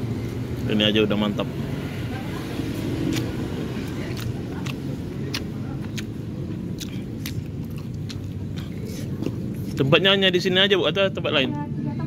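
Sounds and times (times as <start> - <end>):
low rumble of road traffic: 0.0 - 12.0
person chewing food: 2.8 - 9.9
wet mouth clicks: 3.0 - 9.9.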